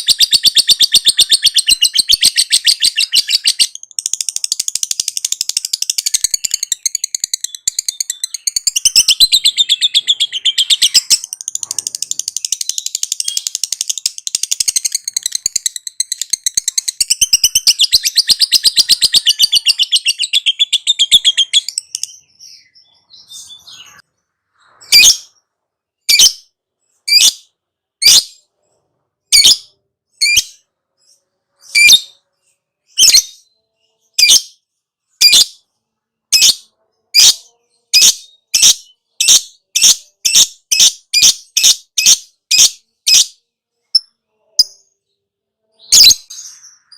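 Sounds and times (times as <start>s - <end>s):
lovebird chattering trill: 0.0s - 22.2s
sharp bird calls: 0.0s - 33.5s.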